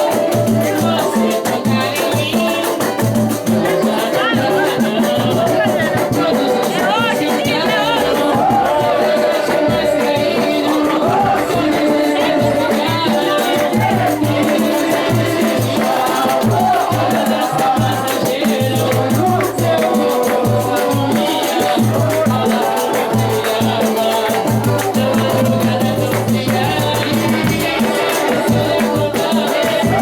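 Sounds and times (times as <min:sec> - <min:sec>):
faint voices: 0:00.0 - 0:30.0
samba band playing: 0:00.0 - 0:30.0.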